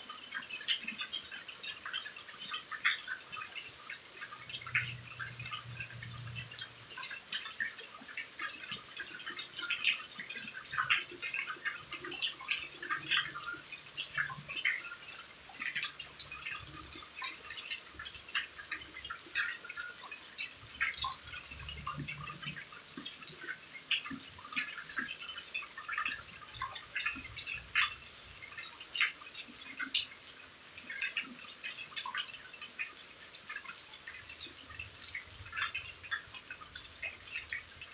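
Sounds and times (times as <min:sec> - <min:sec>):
faint steady rain hiss: 0:00.0 - 0:37.9
raindrops dripping: 0:00.0 - 0:37.9.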